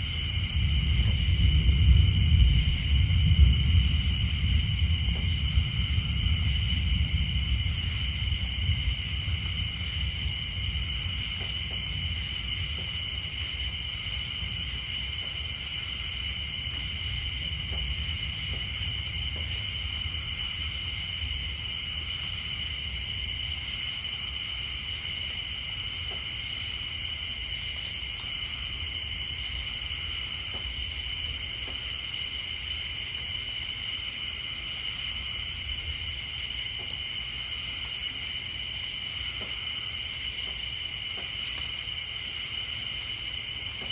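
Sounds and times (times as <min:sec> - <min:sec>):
low thunder rumble: 0:00.0 - 0:24.3
insects and tree frogs droning: 0:00.0 - 0:43.9.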